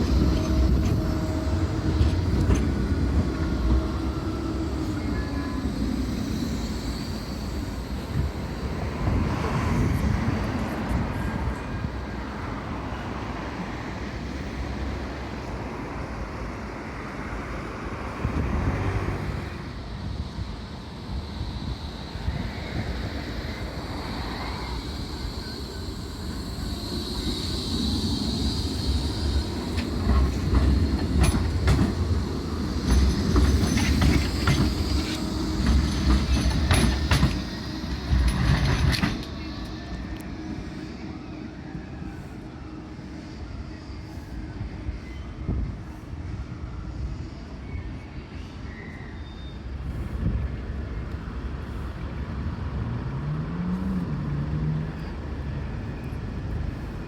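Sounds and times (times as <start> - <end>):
high wheel squeal: 0.0 - 12.3, 18.8 - 50.3
tram rumbling along track: 0.0 - 57.0
wheels clicking over rails: 26.2 - 40.3.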